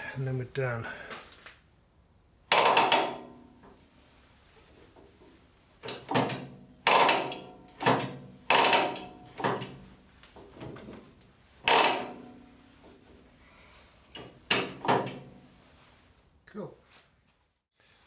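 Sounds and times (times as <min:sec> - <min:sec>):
metallic knocks and clanks: 0:02.5 - 0:03.8, 0:05.8 - 0:13.1, 0:14.1 - 0:15.4.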